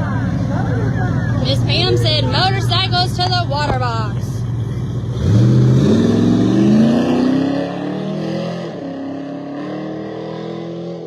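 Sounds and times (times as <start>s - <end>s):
car engine accelerating hard: 4.4s - 11.0s.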